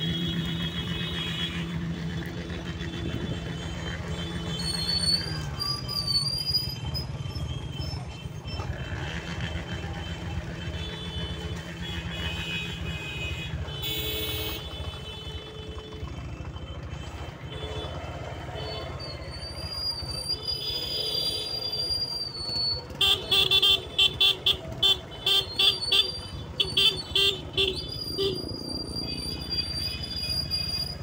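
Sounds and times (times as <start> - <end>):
vehicle engines rumbling: 0.0 - 31.0
high squealing tones: 4.0 - 8.8, 18.6 - 23.0, 25.4 - 31.0.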